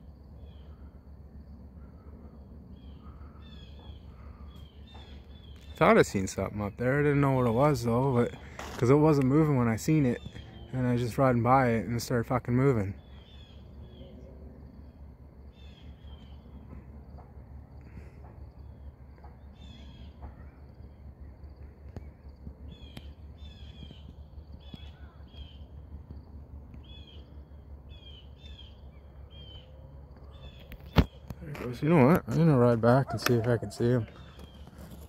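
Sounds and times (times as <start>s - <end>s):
bird chirping: 1.8s - 17.0s, 17.9s - 35.0s.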